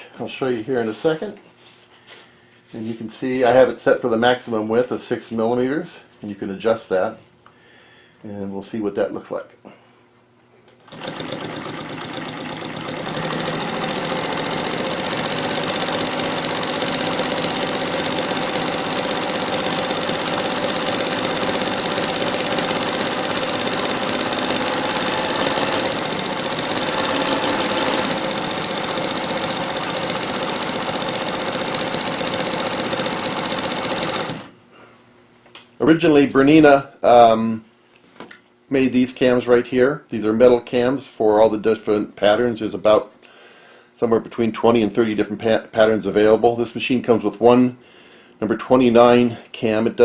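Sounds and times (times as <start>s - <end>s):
industrial sewing machine sewing: 10.8s - 34.6s.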